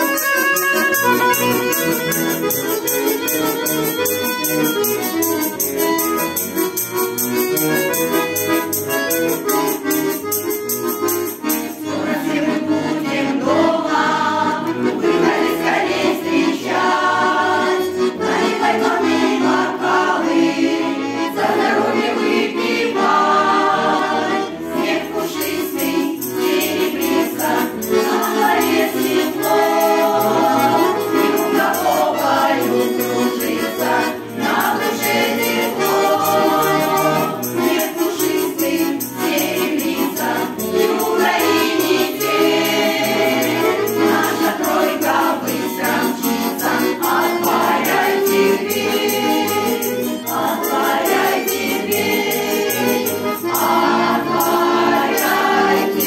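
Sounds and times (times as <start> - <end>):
button accordion playing folk song: 0.0 - 56.0
group of voices singing: 11.4 - 56.0.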